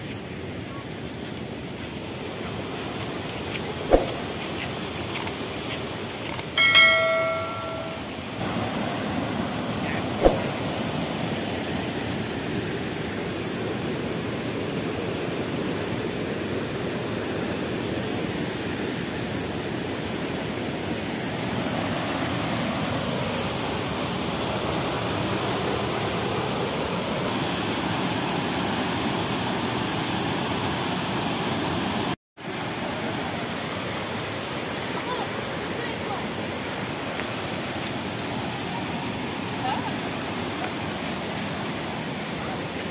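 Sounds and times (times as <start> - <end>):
short bell-like ring: 6.6 - 8.2.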